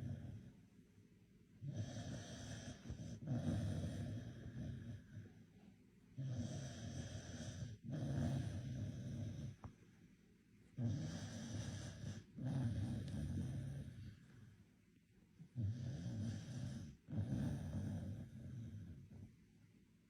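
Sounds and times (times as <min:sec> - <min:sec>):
dog snoring: 0:00.0 - 0:00.6, 0:01.6 - 0:05.4, 0:06.1 - 0:09.8, 0:10.7 - 0:14.4, 0:15.4 - 0:19.4.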